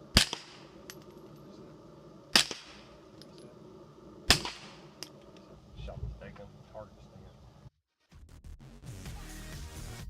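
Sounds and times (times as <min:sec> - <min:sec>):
suppressed pistol shots: 0:00.1 - 0:00.8, 0:02.3 - 0:02.9, 0:04.3 - 0:04.9.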